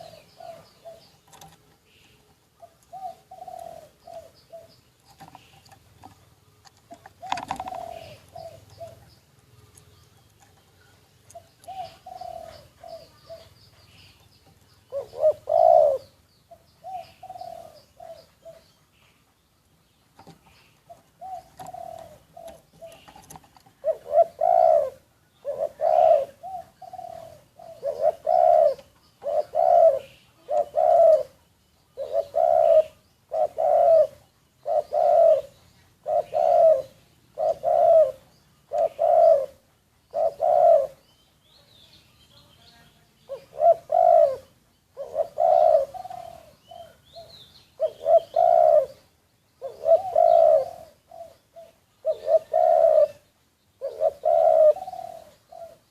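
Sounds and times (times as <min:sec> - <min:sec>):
dove cooing: 0:00.0 - 0:14.2, 0:14.9 - 0:19.0, 0:20.2 - 0:41.8, 0:43.3 - 0:55.9
small bird chirping: 0:00.0 - 0:55.9.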